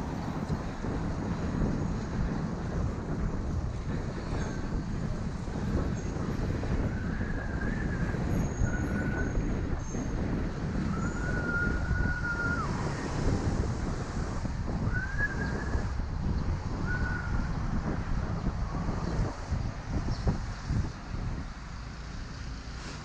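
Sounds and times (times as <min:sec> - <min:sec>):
road rumble: 0:00.0 - 0:23.0
wind buffeting microphone: 0:00.0 - 0:23.0.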